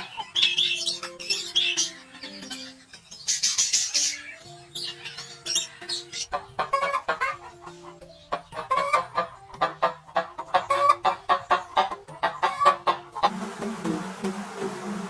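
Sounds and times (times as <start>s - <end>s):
background music: 0.0s - 15.0s
chickens clucking: 0.0s - 15.0s
steady buzz: 13.3s - 15.0s.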